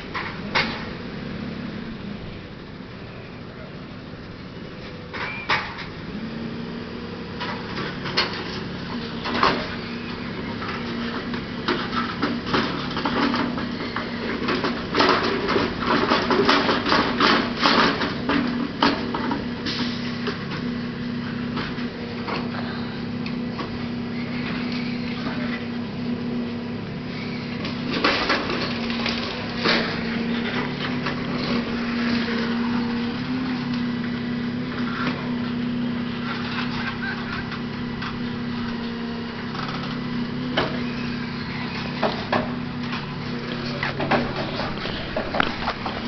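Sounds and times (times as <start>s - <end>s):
truck diesel engine running: 0.0s - 46.0s
loud clanks and bangs: 41.8s - 46.0s.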